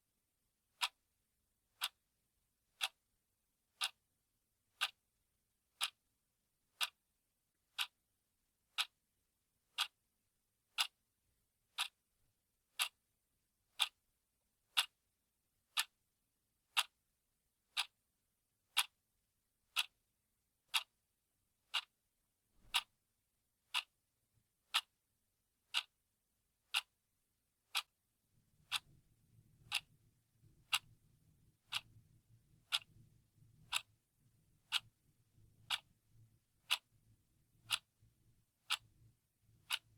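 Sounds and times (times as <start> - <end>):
clock ticking: 0.8 - 1.0, 1.7 - 2.0, 2.7 - 3.0, 3.7 - 4.0, 4.7 - 5.0, 5.7 - 6.0, 6.7 - 7.0, 7.7 - 8.0, 8.7 - 9.0, 9.7 - 10.0, 10.7 - 11.0, 11.7 - 12.0, 12.7 - 13.0, 13.7 - 14.0, 14.7 - 15.0, 15.7 - 16.0, 16.7 - 17.0, 17.7 - 18.0, 18.7 - 19.0, 19.7 - 20.0, 20.7 - 21.0, 21.6 - 22.0, 22.6 - 23.0, 23.7 - 24.0, 24.6 - 25.0, 25.6 - 26.0, 26.7 - 27.0, 27.7 - 28.0, 28.6 - 29.0, 29.6 - 31.0, 31.6 - 34.0, 34.6 - 35.0, 35.6 - 35.9, 36.6 - 37.0, 37.6 - 39.0, 39.6 - 39.9.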